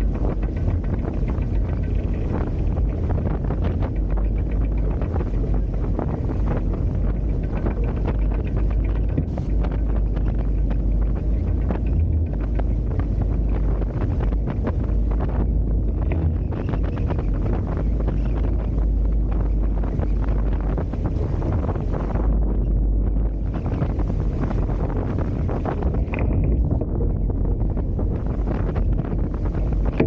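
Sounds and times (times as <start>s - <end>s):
water splashing along hulls: 0.0s - 30.0s
wind on microphone: 0.0s - 30.0s.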